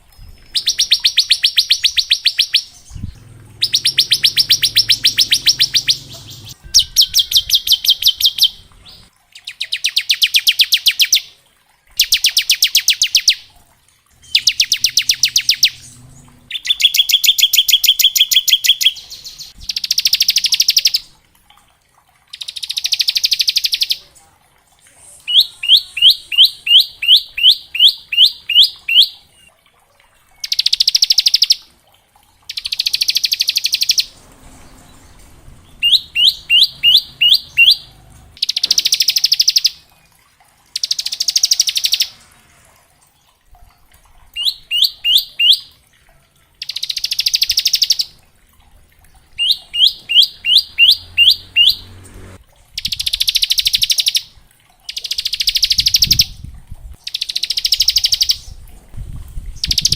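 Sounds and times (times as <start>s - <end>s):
bird chirping notes: 0.0s - 11.3s, 14.2s - 21.1s, 25.1s - 29.5s, 32.5s - 39.8s, 44.4s - 45.7s, 49.3s - 54.3s.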